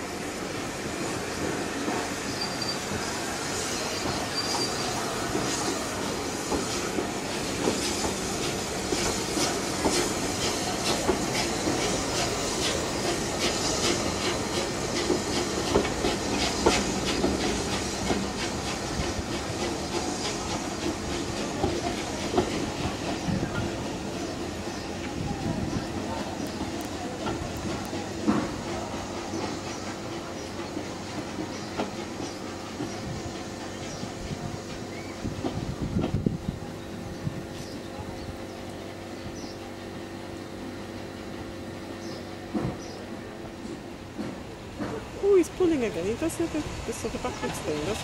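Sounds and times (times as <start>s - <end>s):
train rolling rumble: 0.0s - 48.0s
train wheels clicking over rail joints: 0.4s - 36.4s, 42.0s - 48.0s
high wheel squeal: 2.2s - 6.6s.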